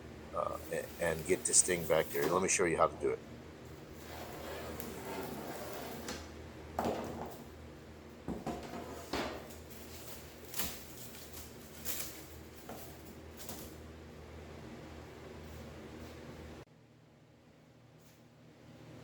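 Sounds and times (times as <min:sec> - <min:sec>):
low steady hum: 0:00.0 - 0:19.0
scraping and rubbing on door panel: 0:04.0 - 0:06.2.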